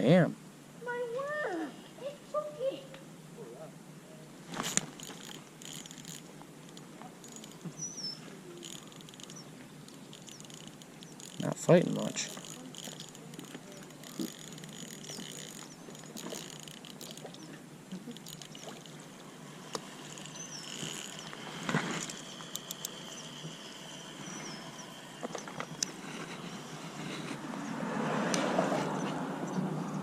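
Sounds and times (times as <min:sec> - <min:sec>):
small clicks and handling noises: 0:04.6 - 0:07.7, 0:08.6 - 0:23.1
high bird chirps: 0:07.2 - 0:17.6, 0:18.2 - 0:26.9.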